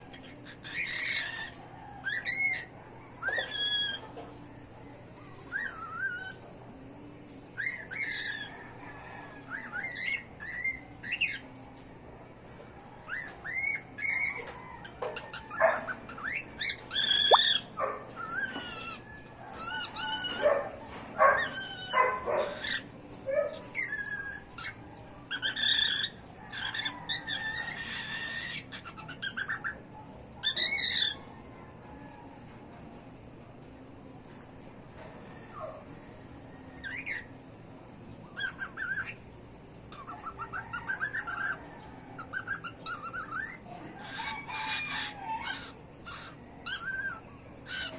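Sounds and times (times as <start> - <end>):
cockatiels chirping and whistling: 0.2 - 4.1, 5.5 - 6.4, 7.6 - 8.5, 9.5 - 11.4, 13.1 - 14.6, 15.3 - 20.4, 23.6 - 29.8, 30.4 - 31.2, 38.3 - 39.2, 39.9 - 41.6, 42.2 - 47.9.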